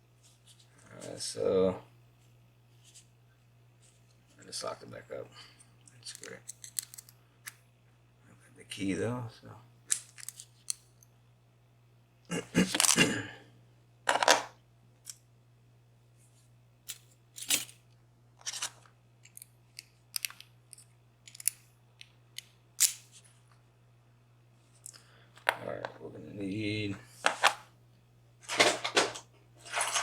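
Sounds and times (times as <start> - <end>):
lock and metal tools clicking: 6.1 - 7.1, 19.2 - 23.0.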